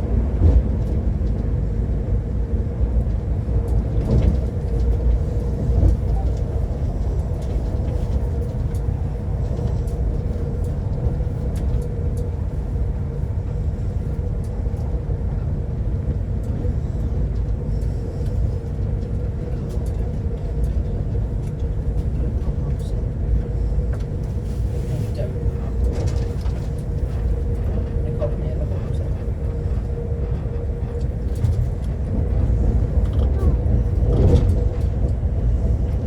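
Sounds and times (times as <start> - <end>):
constant hum: 0.0 - 36.0
train rumbling inside carriage: 0.0 - 36.0.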